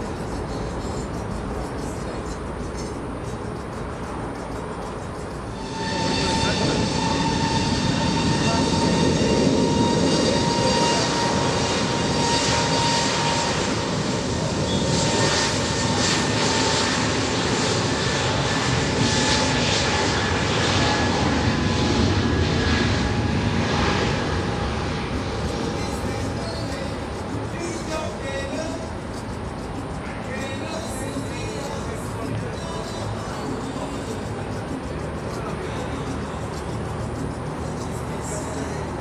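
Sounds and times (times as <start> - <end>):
aircraft engines rushing: 0.0 - 39.0
high held engine whine: 0.0 - 39.0.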